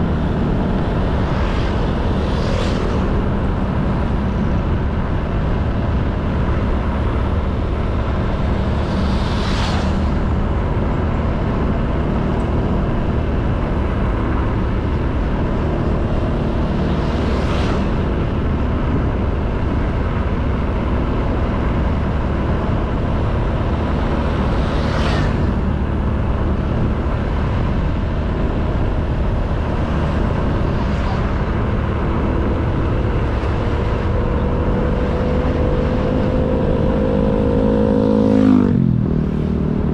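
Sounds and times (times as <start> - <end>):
faint rising engine tone: 0.0 - 5.0
wind rumble on microphone: 0.0 - 39.9
hissing whooshes: 8.5 - 10.5.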